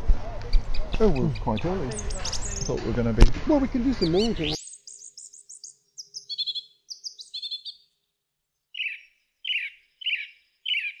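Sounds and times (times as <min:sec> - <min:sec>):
birds singing: 0:00.3 - 0:11.0.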